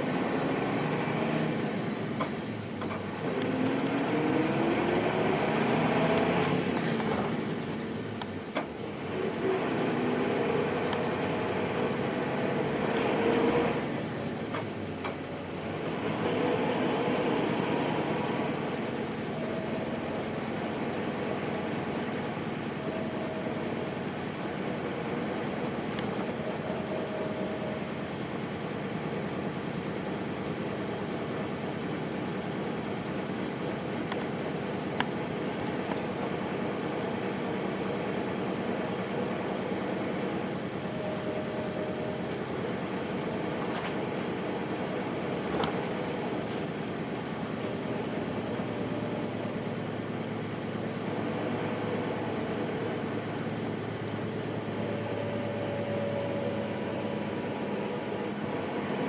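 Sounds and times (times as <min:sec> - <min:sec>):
bus diesel engine shifting gears: 0:00.0 - 0:59.0.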